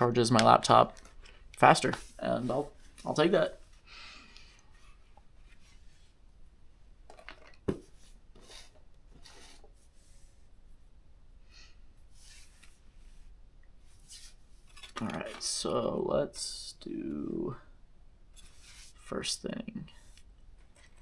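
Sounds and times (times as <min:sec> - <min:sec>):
small parts rubbing and scraping: 0:14.0 - 0:15.6.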